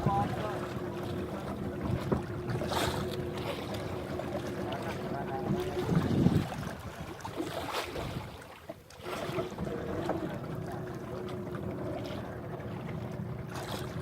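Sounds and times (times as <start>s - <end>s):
boat engine humming: 0.0s - 14.0s
water wash: 0.0s - 14.0s
wind noise: 5.5s - 7.0s.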